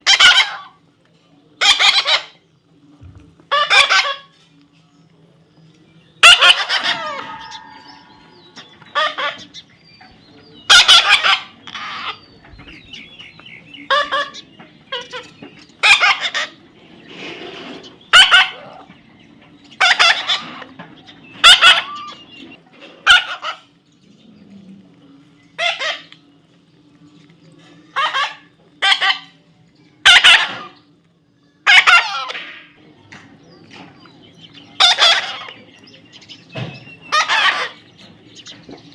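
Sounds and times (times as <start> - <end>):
parrot calling harshly: 0.0 - 0.8, 1.6 - 2.4, 3.5 - 4.3, 6.2 - 9.6, 10.7 - 12.2, 15.8 - 16.6, 18.1 - 18.9, 19.8 - 20.7, 21.4 - 22.2, 23.0 - 23.7, 25.6 - 26.1, 27.9 - 29.4, 30.0 - 30.8, 31.6 - 32.4, 34.8 - 35.6, 37.1 - 37.8
faint low hum: 0.4 - 38.9.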